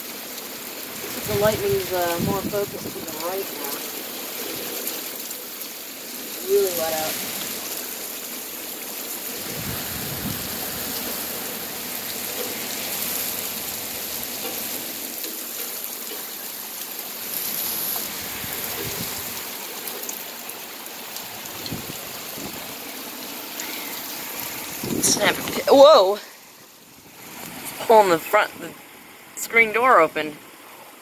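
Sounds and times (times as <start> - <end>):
rain falling steadily: 0.0 - 31.0.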